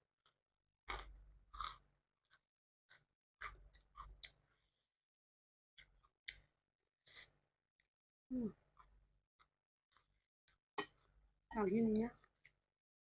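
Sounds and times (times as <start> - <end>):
person chewing food: 0.2 - 4.8, 5.8 - 7.4, 8.6 - 11.2.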